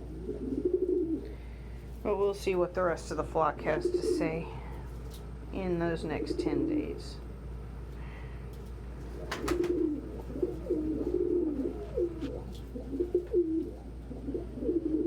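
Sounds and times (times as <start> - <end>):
pigeons cooing: 0.0 - 1.9, 3.5 - 5.1, 6.0 - 7.2, 8.4 - 15.0.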